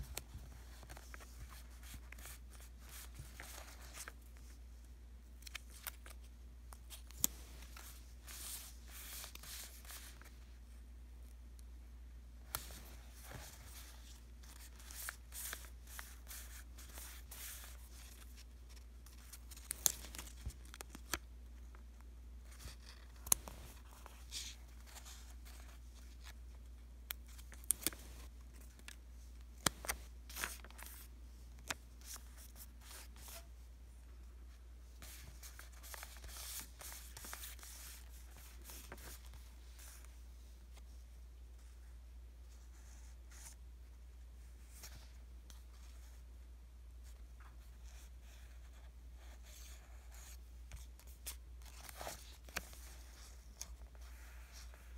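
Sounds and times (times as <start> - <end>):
stickers peeling and rustling: 12.5 - 21.3, 27.1 - 33.4.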